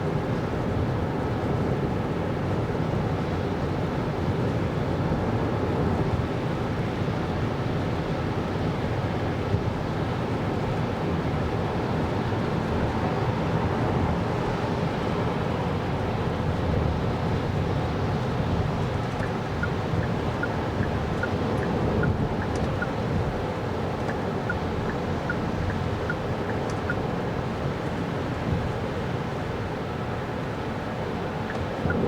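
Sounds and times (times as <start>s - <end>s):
road and tyre noise: 10.7s - 32.0s.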